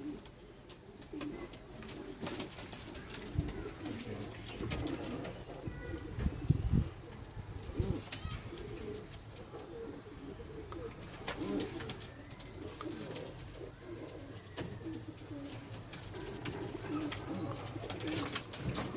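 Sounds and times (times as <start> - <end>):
pigeons cooing: 0.0 - 18.9.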